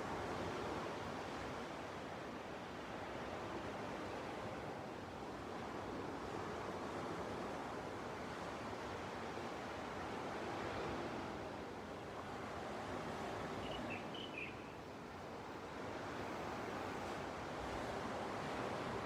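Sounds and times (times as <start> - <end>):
ocean waves washing onto beach: 0.0 - 19.0.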